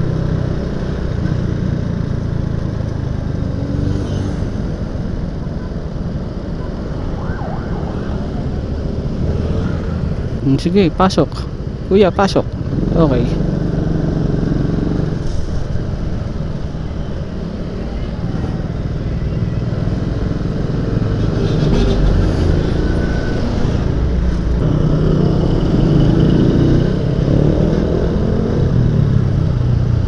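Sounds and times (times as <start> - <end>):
road and traffic noise: 0.0 - 30.0.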